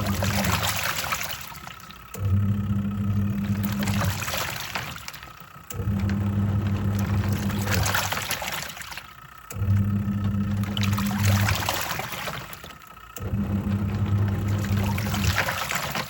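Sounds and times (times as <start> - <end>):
washing machine motor humming: 0.0 - 16.0
water and clothes sloshing: 0.0 - 16.0.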